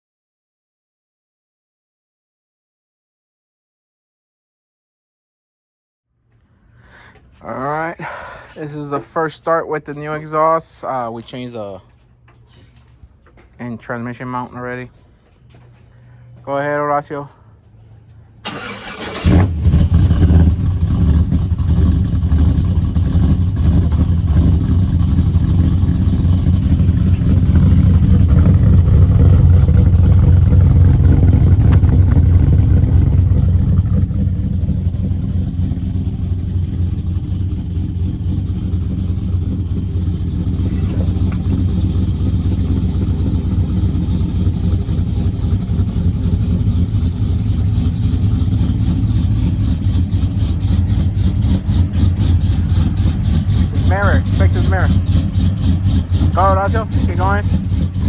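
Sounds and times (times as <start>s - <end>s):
loud engine idling: 18.4s - 58.0s.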